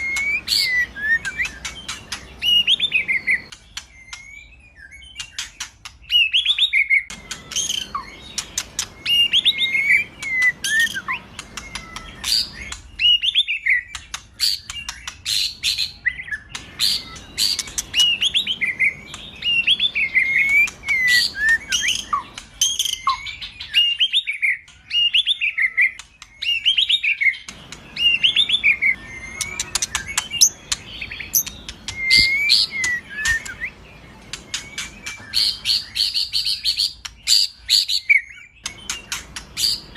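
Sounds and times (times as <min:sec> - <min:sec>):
songbird singing whistled phrases: 0:00.0 - 0:39.9
rapid sharp ticking bird notes: 0:26.0 - 0:38.0, 0:38.6 - 0:39.9.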